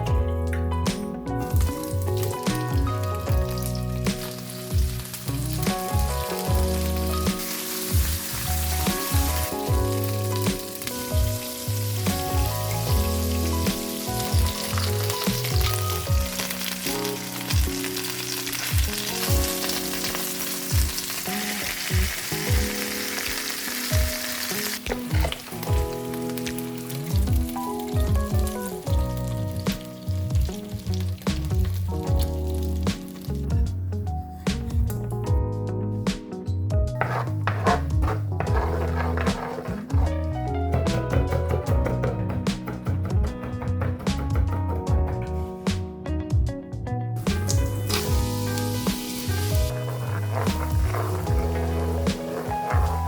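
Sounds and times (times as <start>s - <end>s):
background music with beat: 0.0s - 53.0s
food sizzling in pan: 1.5s - 33.4s, 47.3s - 53.0s.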